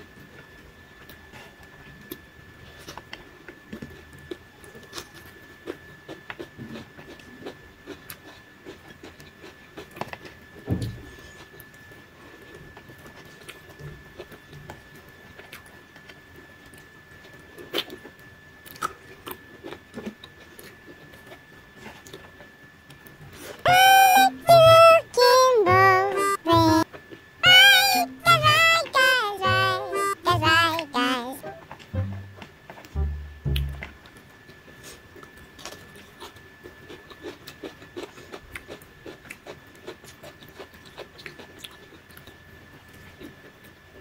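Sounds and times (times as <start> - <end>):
high-pitched whine: 27.4 - 34.2
person chewing: 35.6 - 42.3.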